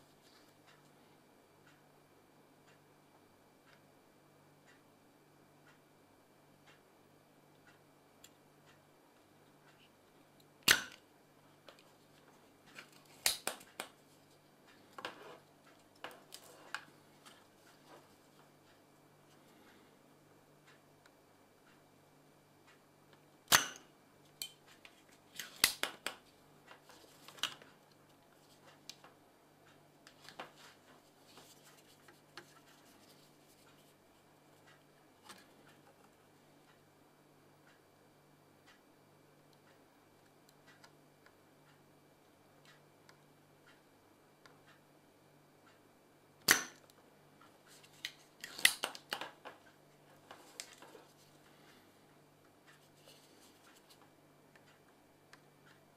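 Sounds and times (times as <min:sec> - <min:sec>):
faint steady hum: 0:00.0 - 0:55.9
faint clicks and scratching: 0:11.5 - 0:19.9, 0:24.5 - 0:36.8, 0:47.0 - 0:55.9.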